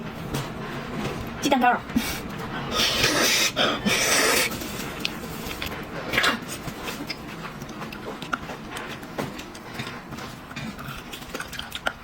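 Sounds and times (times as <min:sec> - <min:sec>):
eating mouth sounds: 0:02.5 - 0:12.0
slurping: 0:02.5 - 0:12.0.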